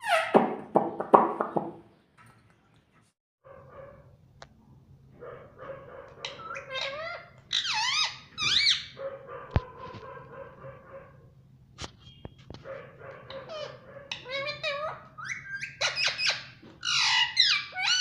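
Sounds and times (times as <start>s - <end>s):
parrot calling: 5.8s - 9.1s, 13.2s - 18.0s.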